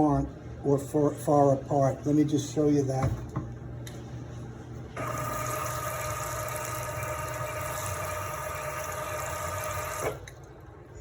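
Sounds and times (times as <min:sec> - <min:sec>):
pump whining: 0:05.0 - 0:10.4.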